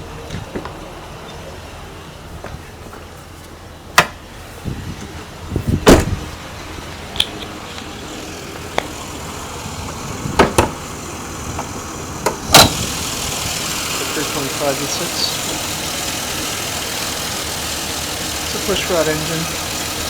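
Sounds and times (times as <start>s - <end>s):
car engine idling: 0.0s - 20.0s
clunks of car body panels: 5.0s - 6.3s, 9.8s - 10.8s.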